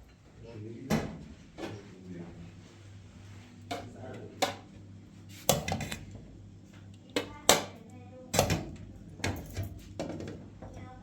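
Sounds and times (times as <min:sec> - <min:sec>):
knocks and clatters of hard objects: 0:08.4 - 0:10.7.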